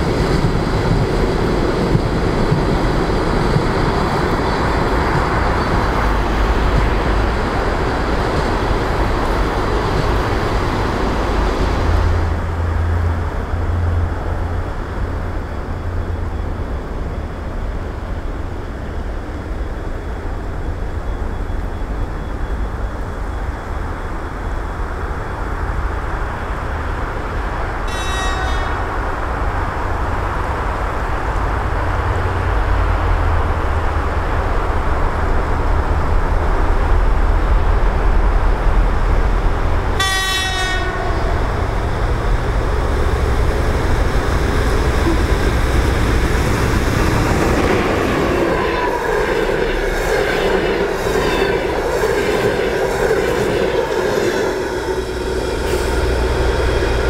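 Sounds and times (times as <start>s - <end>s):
train rumbling: 0.0s - 57.0s
train horn blast: 27.8s - 29.0s, 40.0s - 41.6s.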